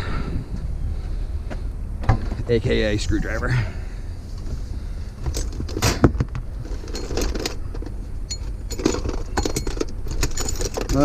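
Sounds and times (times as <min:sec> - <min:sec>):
steady low rumble: 0:00.0 - 0:10.7
metal tools clinking: 0:05.2 - 0:11.0.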